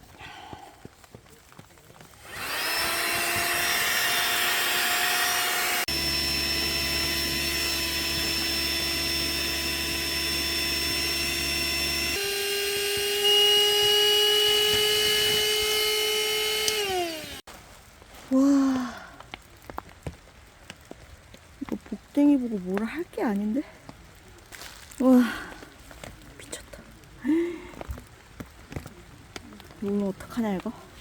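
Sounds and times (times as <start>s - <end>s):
handheld vacuum cleaner whining: 2.2s - 17.5s.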